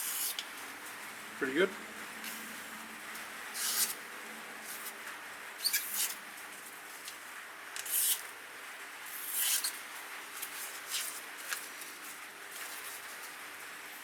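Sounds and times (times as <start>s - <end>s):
knife slicing through paper: 0.0s - 0.4s, 3.6s - 4.0s, 7.8s - 8.3s, 9.2s - 9.8s.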